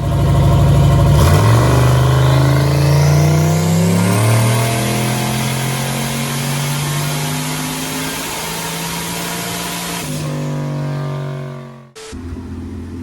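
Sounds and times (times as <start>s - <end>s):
engine pulling at full throttle: 0.0s - 13.0s
turbo whistle: 1.2s - 10.3s.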